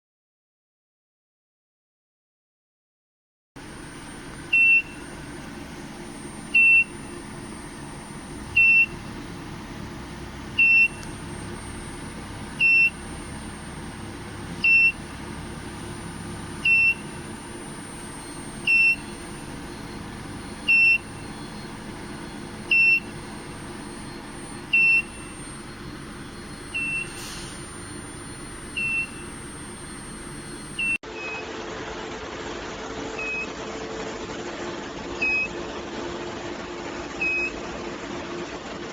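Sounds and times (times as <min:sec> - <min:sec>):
faint high whine: 0:03.6 - 0:31.0
loud noisy hum: 0:03.6 - 0:38.9
steady machine hum: 0:03.6 - 0:38.9
short high electronic beeps: 0:14.6 - 0:15.6, 0:16.6 - 0:17.2, 0:17.8 - 0:31.4.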